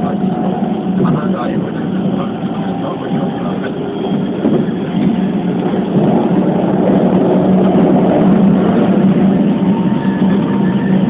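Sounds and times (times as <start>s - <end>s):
muffled train wheels rumbling: 0.0s - 11.0s.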